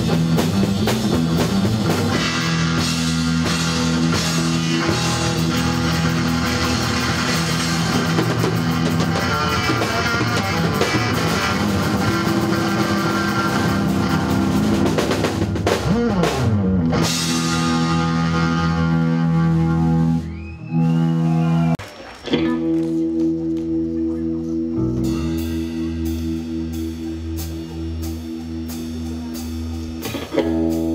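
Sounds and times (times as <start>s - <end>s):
rock band playing: 0.0s - 30.9s.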